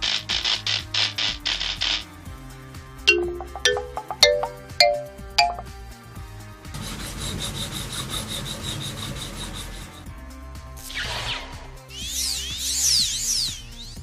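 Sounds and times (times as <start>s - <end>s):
background music: 2.8s - 6.2s
bell-like chime notes: 3.1s - 5.7s.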